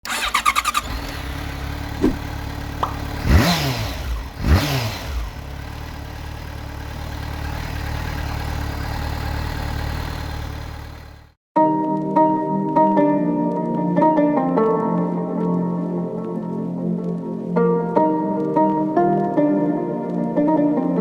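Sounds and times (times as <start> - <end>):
motorcycle engine idling and revving: 0.0 - 11.4.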